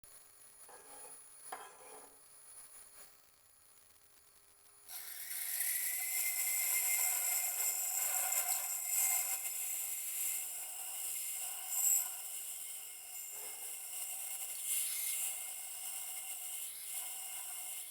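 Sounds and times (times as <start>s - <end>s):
ultrasonic drill whining through glass: 4.9s - 17.9s.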